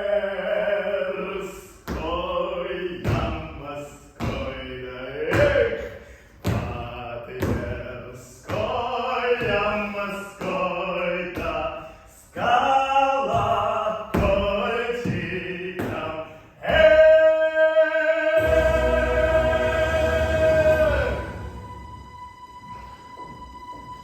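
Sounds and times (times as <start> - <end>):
voices singing together: 12.4 - 22.4
noisy musical accompaniment: 18.0 - 24.0.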